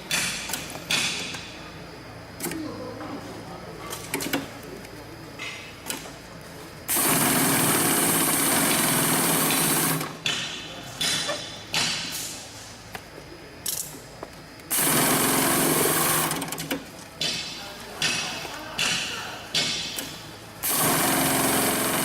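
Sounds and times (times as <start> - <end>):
industrial sewing machine stitching: 6.9 - 10.2, 14.7 - 16.8, 20.6 - 22.0.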